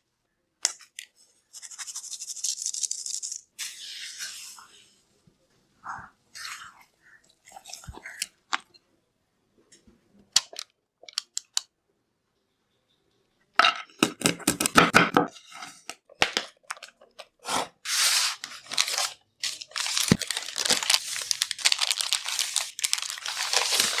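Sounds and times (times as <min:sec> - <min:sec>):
packaging crinkling and tearing: 0:18.2 - 0:24.0
crunching and crackling: 0:18.8 - 0:24.0.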